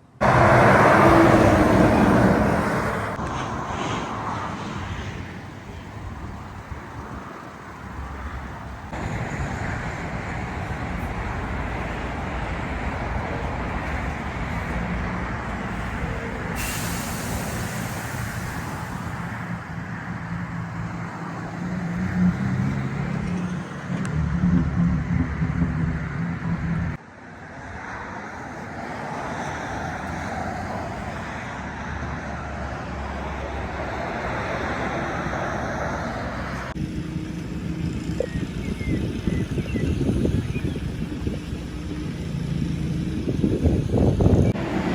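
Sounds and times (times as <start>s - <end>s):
truck diesel engine running: 5.1s - 23.2s
loud high air hiss: 15.7s - 19.6s.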